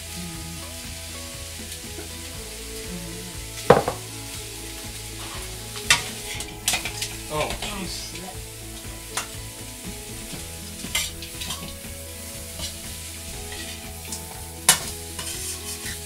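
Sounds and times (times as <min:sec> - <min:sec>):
vegetables sizzling in oil: 0:00.0 - 0:16.0
metal spatula scraping wok: 0:05.1 - 0:16.0.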